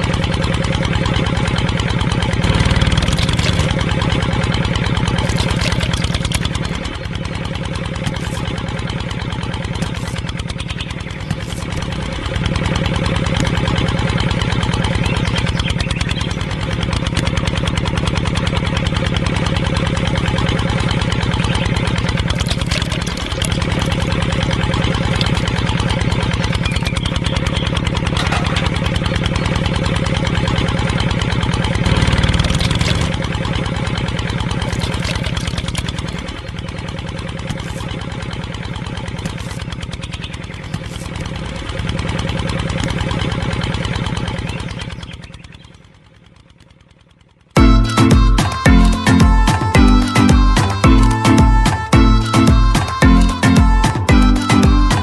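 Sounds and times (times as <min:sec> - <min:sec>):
small engine idling: 0:00.0 - 0:55.0.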